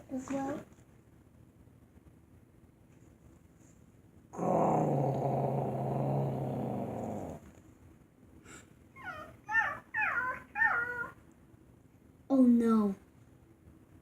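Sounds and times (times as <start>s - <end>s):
person growling like an animal: 4.4s - 7.4s.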